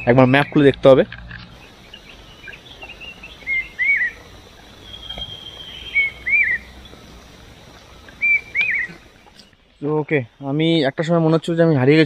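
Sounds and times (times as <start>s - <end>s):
bird singing whistled phrase: 1.6s - 6.8s, 8.2s - 9.0s
thin high drawn-out whistle: 2.4s - 6.8s, 8.2s - 9.0s.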